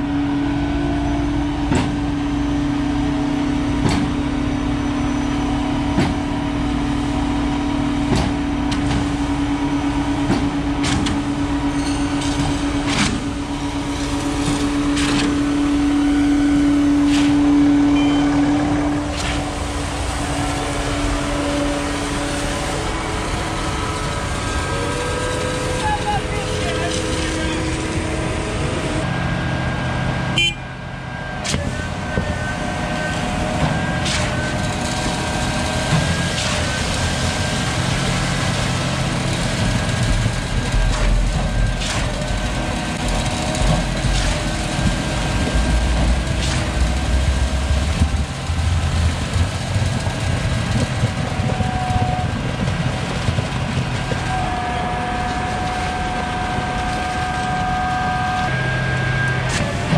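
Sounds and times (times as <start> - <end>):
diesel truck engines running: 0.0 - 59.9.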